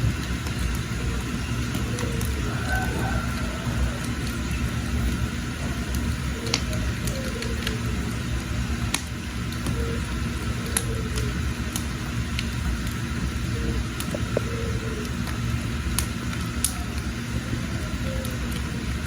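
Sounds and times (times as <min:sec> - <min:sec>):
fire crackles and pops: 0:00.0 - 0:19.0
wood fire roaring: 0:00.0 - 0:19.0.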